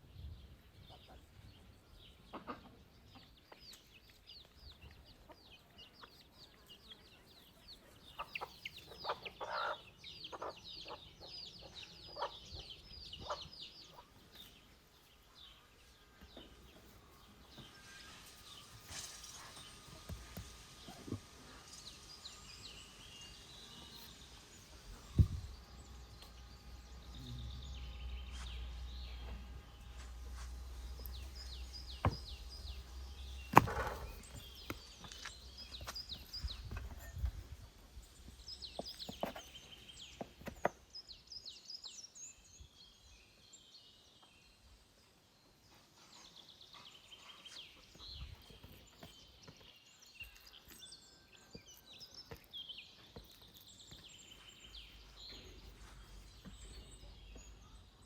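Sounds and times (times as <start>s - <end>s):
birds chirping: 0.0s - 58.0s
sharp knocks and thuds: 31.9s - 32.6s.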